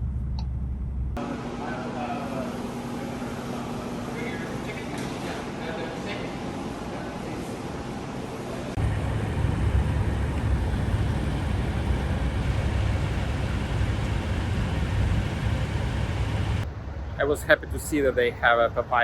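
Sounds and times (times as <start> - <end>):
road noise: 8.5 - 19.0
truck driving at speed: 8.8 - 16.6.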